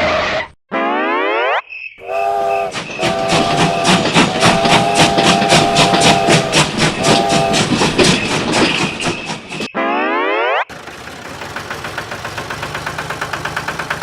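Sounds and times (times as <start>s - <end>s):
steam whistle blasts: 2.0s - 7.8s
steam train chuffing: 2.0s - 9.7s, 10.7s - 14.0s.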